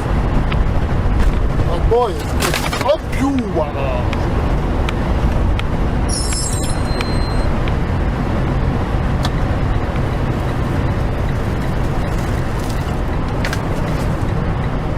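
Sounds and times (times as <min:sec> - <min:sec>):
truck engine and road rumble: 0:00.0 - 0:14.9
high-pitched squeak: 0:06.1 - 0:07.5.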